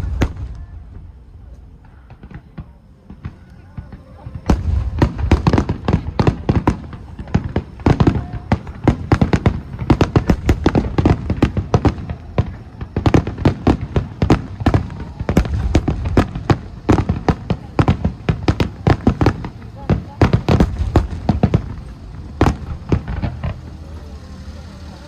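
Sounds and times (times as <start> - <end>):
deep rumbling echo: 0.0 - 2.3
fireworks booming and cracking: 0.0 - 25.0.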